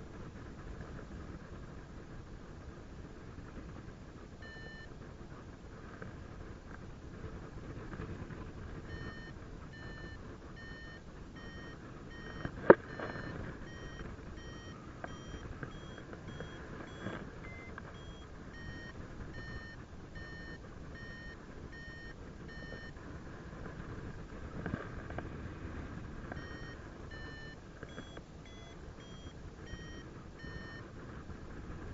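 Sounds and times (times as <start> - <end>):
variometer short beeps: 4.4 - 4.9, 8.9 - 23.0, 26.4 - 30.8.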